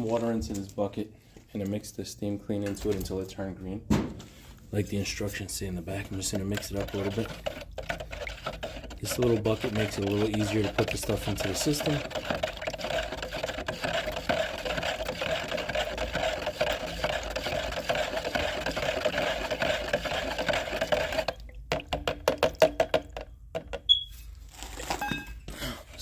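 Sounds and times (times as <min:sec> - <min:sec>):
liquid swishing in bucket: 0:05.0 - 0:23.2.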